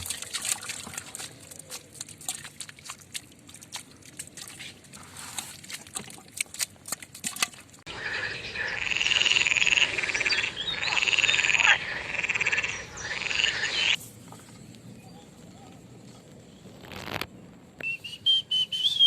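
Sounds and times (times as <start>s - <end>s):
frog croaking: 7.9s - 14.0s.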